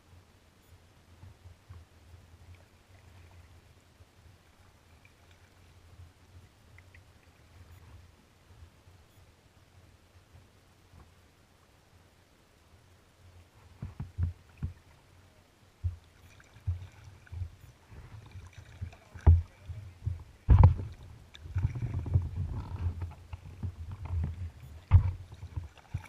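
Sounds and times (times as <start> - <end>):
water sloshing against kayak: 13.4 - 26.0
paddle knock: 16.6 - 26.0.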